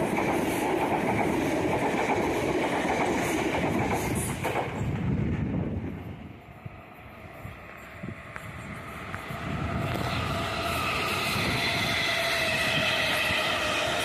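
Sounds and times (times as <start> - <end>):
electric train passing: 0.0 - 14.0
traction motor whine: 7.3 - 14.0.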